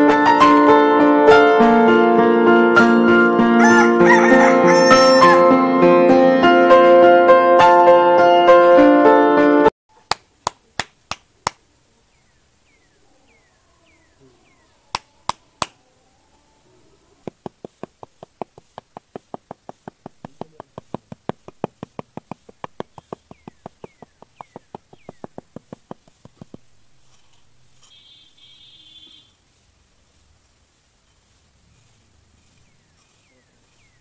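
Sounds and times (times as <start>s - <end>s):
sharp taps from hand tool: 10.1s - 11.6s, 17.2s - 26.7s
trowel scraping sand: 17.3s - 28.2s, 31.0s - 34.0s.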